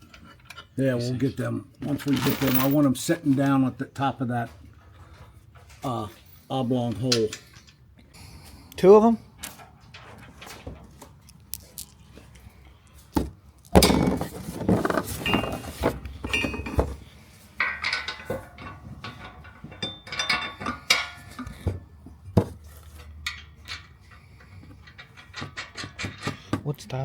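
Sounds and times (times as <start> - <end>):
metal hardware clinking: 2.0 - 3.0, 15.2 - 21.6.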